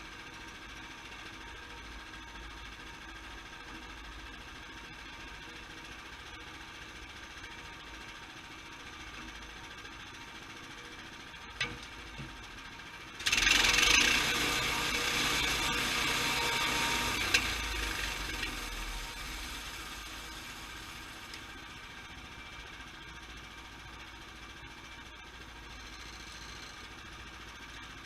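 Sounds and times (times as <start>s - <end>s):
sawmill running: 8.7s - 27.9s
saw cutting into log: 13.3s - 20.2s.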